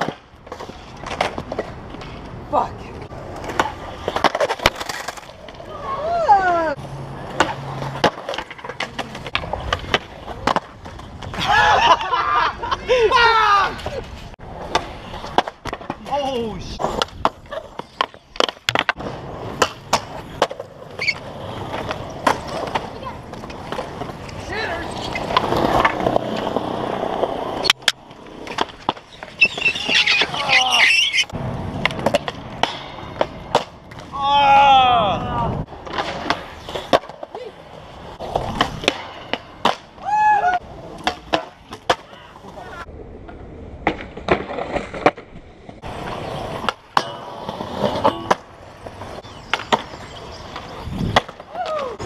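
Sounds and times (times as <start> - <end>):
skateboard clacking on ground: 0.0 - 6.2, 6.8 - 11.6, 13.7 - 34.4, 35.6 - 52.0
skateboard wheels rolling on concrete: 0.0 - 52.0
high wavering cry: 29.4 - 31.3.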